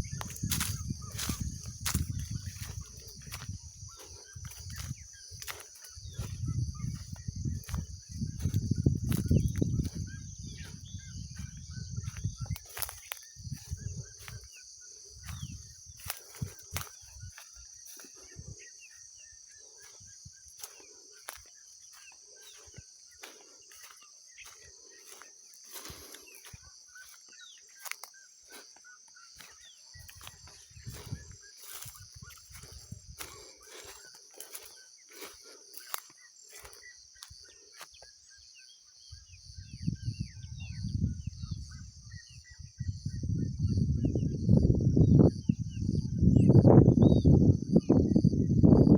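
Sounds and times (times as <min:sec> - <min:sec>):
footsteps on a trail: 0:00.0 - 0:38.2
high-pitched insect drone: 0:00.0 - 0:48.9.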